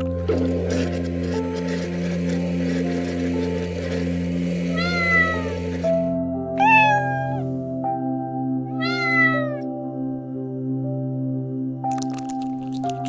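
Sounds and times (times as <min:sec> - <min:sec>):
soft background music: 0:00.0 - 0:13.0
cat meowing: 0:04.7 - 0:05.7, 0:06.6 - 0:07.6, 0:08.7 - 0:09.6.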